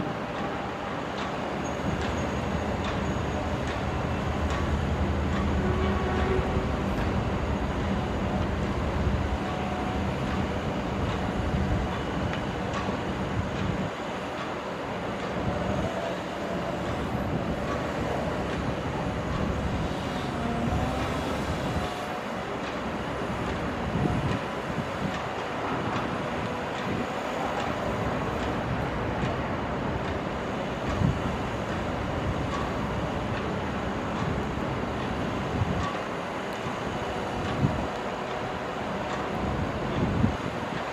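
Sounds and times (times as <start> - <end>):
diesel engines droning: 0.0 - 40.9
machinery knocks and clanks: 0.3 - 7.2, 28.4 - 34.4.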